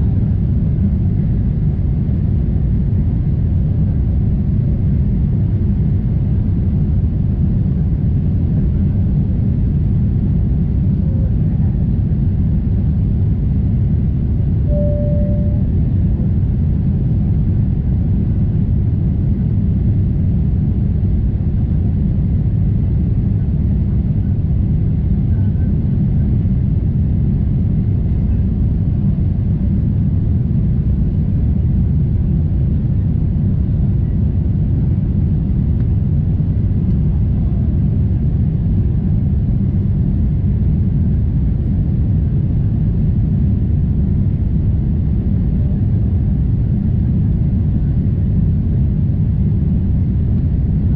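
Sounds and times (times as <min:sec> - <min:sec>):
jet engine drone in cabin: 0:00.0 - 0:50.9.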